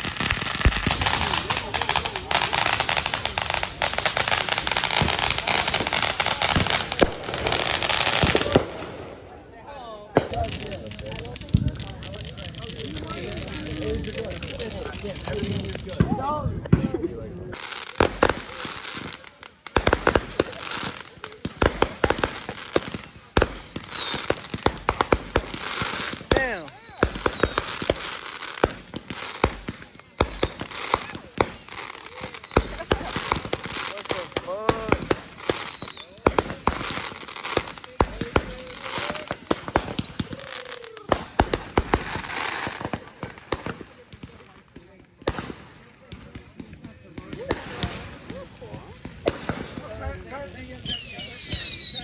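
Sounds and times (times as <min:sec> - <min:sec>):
fireworks crackling: 0:00.0 - 0:52.0
falling firework whistles: 0:21.8 - 0:42.9, 0:46.1 - 0:52.0.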